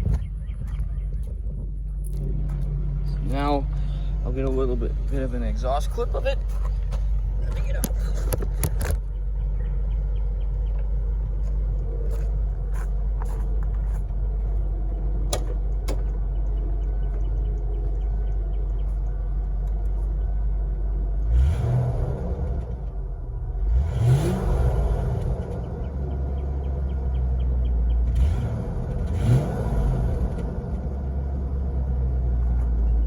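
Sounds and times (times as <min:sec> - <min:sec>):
car engine idling: 0:00.0 - 0:33.0
car engine revving: 0:02.0 - 0:33.0.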